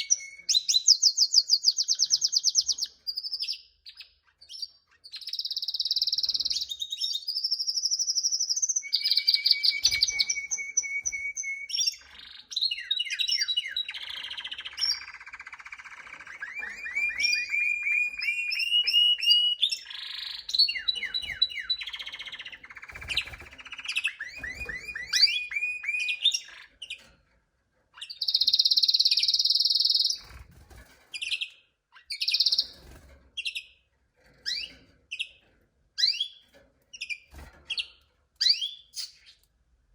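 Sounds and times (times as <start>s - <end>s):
canary singing trills: 0.0s - 27.1s, 27.9s - 33.8s, 34.4s - 35.4s, 36.0s - 39.5s.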